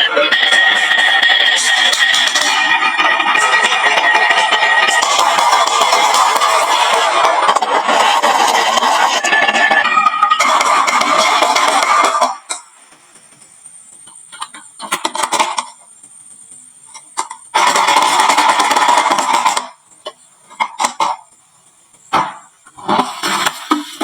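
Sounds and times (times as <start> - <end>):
marbles rolling down wooden slope: 0.0 - 13.3, 17.0 - 19.9
marbles clicking: 0.0 - 13.4.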